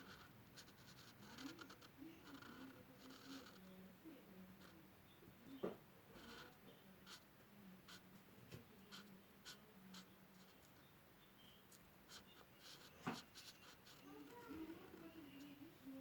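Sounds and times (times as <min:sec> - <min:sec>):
drawing tool scratching paper: 0:00.0 - 0:03.7, 0:12.1 - 0:15.5
faint steady hum: 0:00.0 - 0:16.0.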